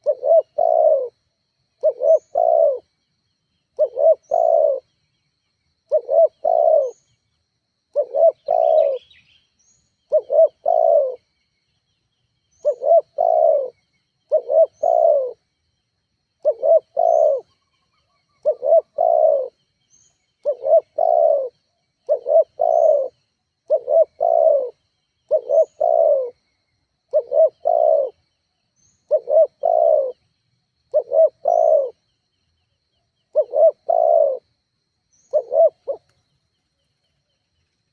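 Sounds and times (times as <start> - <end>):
dove cooing: 0.0 - 1.2, 1.8 - 2.9, 3.8 - 4.9, 5.9 - 7.0, 7.9 - 9.2, 10.1 - 11.2, 12.6 - 15.4, 16.4 - 17.6, 18.3 - 19.6, 20.4 - 26.4, 27.1 - 28.2, 29.0 - 30.2, 30.9 - 32.0, 33.3 - 34.5, 35.2 - 36.0.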